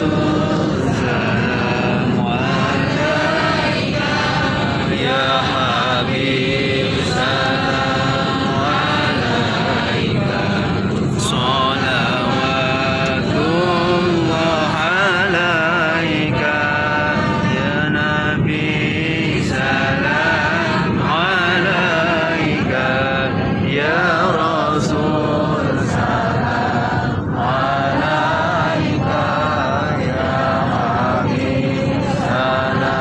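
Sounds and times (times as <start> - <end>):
group chanting in unison: 0.0 - 33.0.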